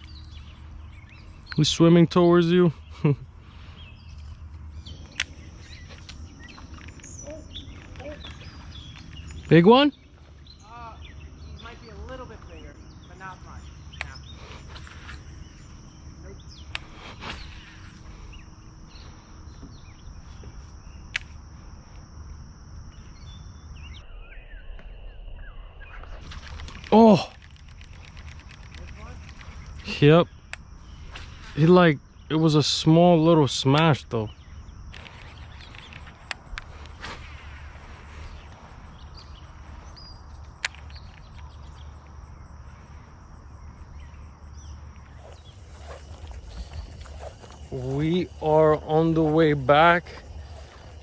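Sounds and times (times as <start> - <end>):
insects trilling: 0.0 - 51.0
lower-pitched insect trill: 0.0 - 51.0
short insect chirps: 0.0 - 51.0
steady low rumble: 41.2 - 51.0
faint high chirps: 43.9 - 51.0.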